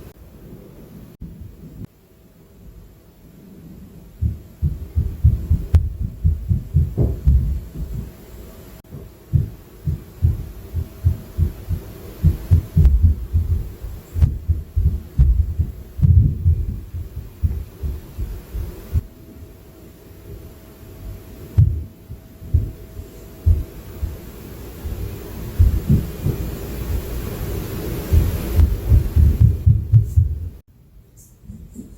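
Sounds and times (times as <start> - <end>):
dull thuds through ceiling: 4.2 - 8.2, 8.8 - 19.1, 21.5 - 27.2, 28.0 - 30.6.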